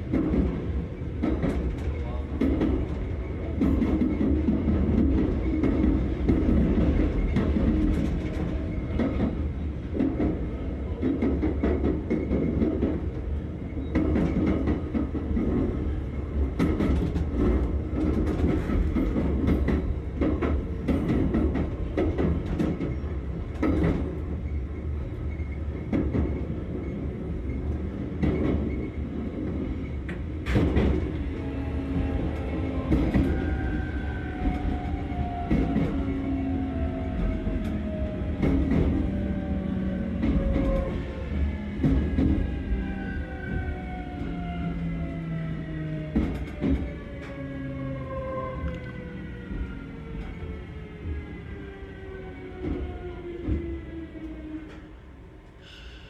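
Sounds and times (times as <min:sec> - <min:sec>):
train running rumble: 0:00.0 - 0:45.1, 0:46.0 - 0:47.5.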